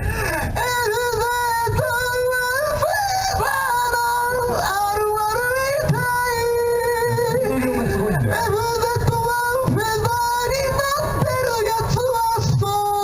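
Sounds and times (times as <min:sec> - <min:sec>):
high singing voice: 0:00.6 - 0:13.0.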